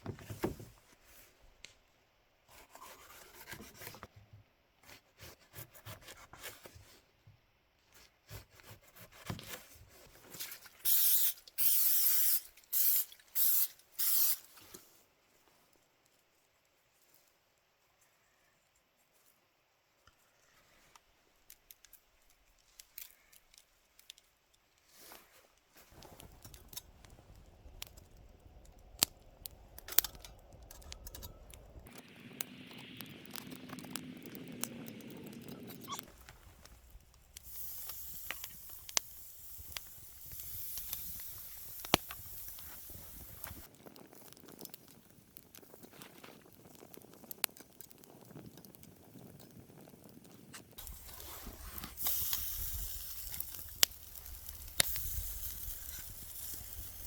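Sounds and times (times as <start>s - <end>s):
fire hissing: 10.8s - 14.6s, 25.8s - 57.0s
campfire crackling and popping: 25.8s - 57.0s.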